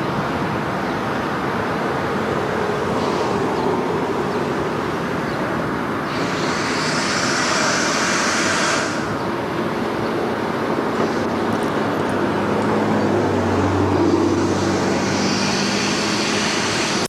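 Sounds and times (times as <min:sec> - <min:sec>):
vehicle rumbling: 0:00.0 - 0:17.0
bright hiss: 0:06.0 - 0:09.3, 0:14.1 - 0:17.0.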